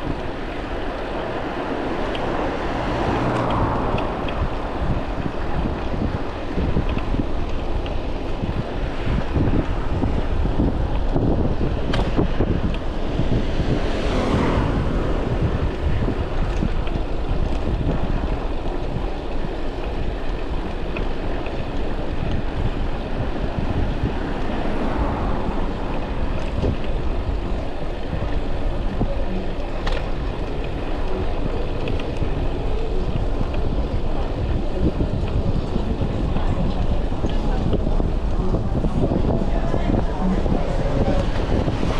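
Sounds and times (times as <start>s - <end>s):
city traffic: 0.0s - 41.9s
wind buffeting microphone: 0.0s - 41.9s
vehicle passing: 0.6s - 6.6s, 12.1s - 19.0s, 22.6s - 33.1s, 34.3s - 41.9s.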